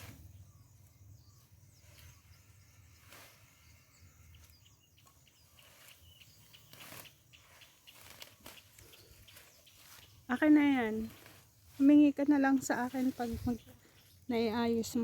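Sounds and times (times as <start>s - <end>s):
faint bird chirps: 0.0s - 15.0s
soft rustles: 5.0s - 14.2s.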